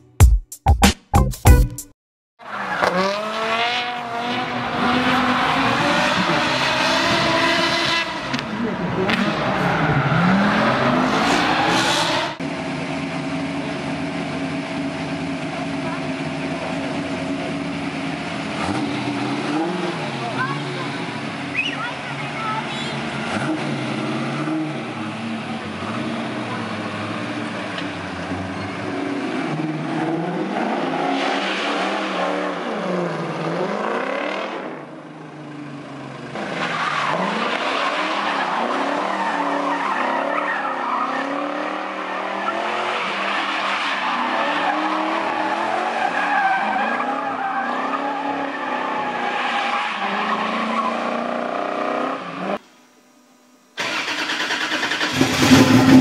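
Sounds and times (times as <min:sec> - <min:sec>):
tyres skidding on tarmac: 0:02.4 - 0:52.6, 0:53.8 - 0:56.0
car engine revving hard: 0:02.5 - 0:12.5, 0:13.1 - 0:35.1, 0:35.7 - 0:52.6, 0:53.8 - 0:56.0.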